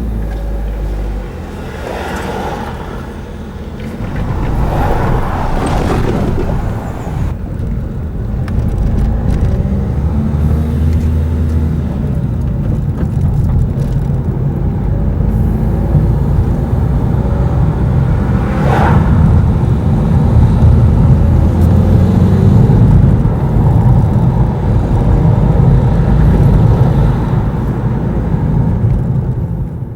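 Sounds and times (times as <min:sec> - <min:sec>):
rail noise: 0:01.4 - 0:08.2
diesel train engine drone: 0:02.8 - 0:10.6.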